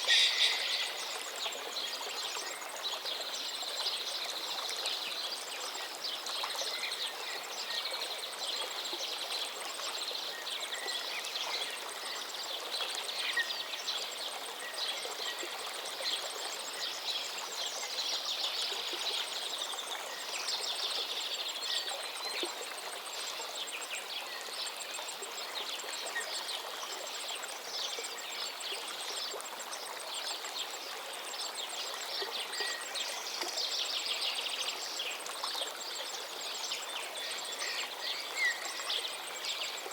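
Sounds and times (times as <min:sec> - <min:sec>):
birds chirping and singing: 0:00.0 - 0:01.0
river flowing: 0:00.0 - 0:39.9.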